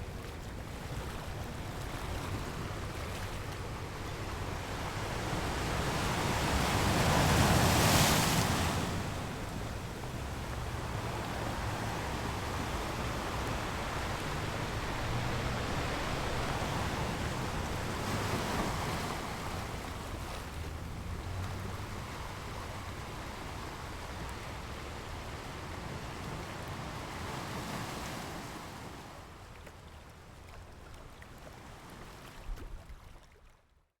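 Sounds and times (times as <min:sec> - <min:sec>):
surf breaking on beach: 0:03.6 - 0:28.9.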